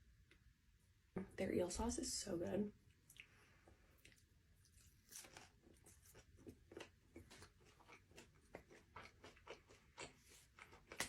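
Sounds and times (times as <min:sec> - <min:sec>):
crunching and chewing crispy food: 0:03.1 - 0:11.0.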